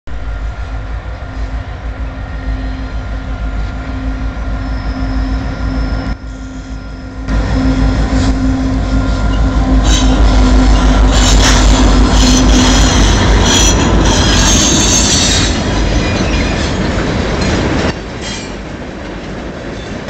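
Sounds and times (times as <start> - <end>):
heavy train rumble: 0.0 - 20.0
diesel locomotive engine drone: 0.1 - 20.0
wheel squeal: 4.4 - 16.8
rail clatter: 7.3 - 20.0.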